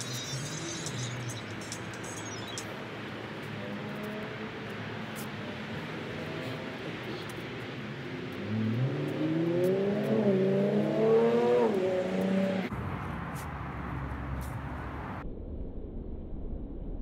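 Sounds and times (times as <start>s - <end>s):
vehicle engine revving: 8.2s - 12.8s.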